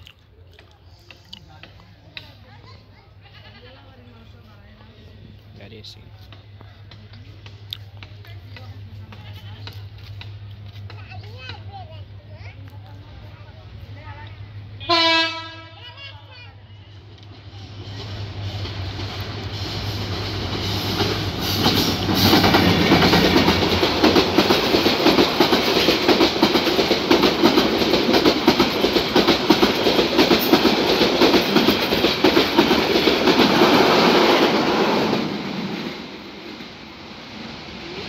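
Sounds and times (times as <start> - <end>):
locomotive hum: 3.1 - 38.0
train wheels clattering on rails: 6.2 - 13.0, 17.2 - 36.8.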